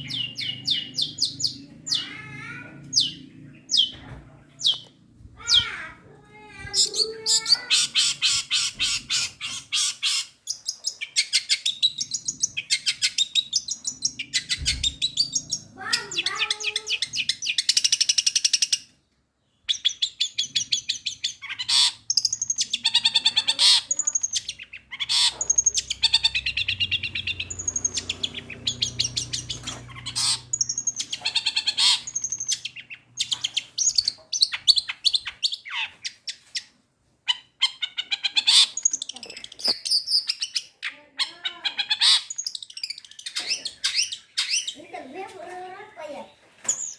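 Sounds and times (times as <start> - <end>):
shrike singing mimicking song: 6.6 - 9.3, 15.2 - 17.6.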